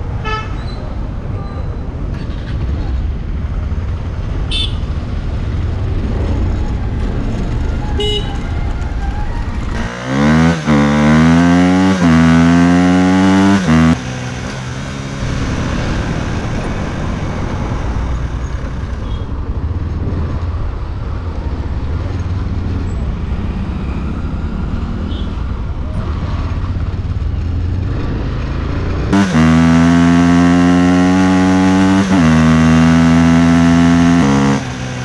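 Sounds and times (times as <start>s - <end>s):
road and wind noise: 0.0s - 35.0s
motorcycle engine revving: 9.7s - 19.3s, 26.1s - 35.0s.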